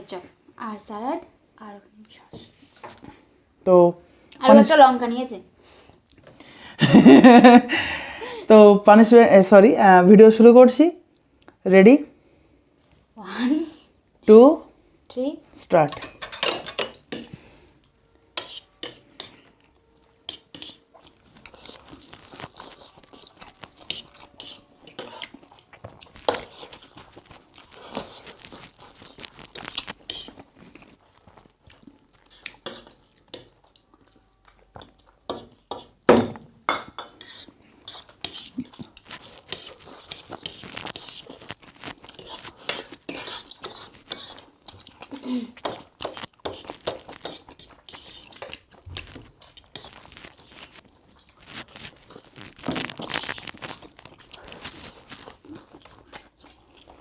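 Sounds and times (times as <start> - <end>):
cutlery clinking on a plate: 15.9 - 17.3
chewing: 17.1 - 36.0, 37.2 - 57.0.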